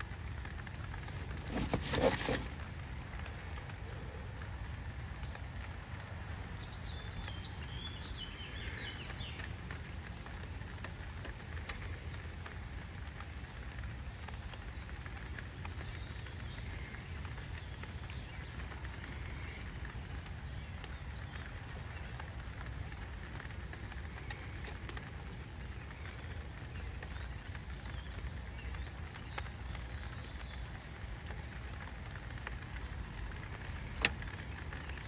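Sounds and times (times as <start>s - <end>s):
rain on tent canopy: 0.0s - 35.0s
bird chirping: 6.6s - 10.5s.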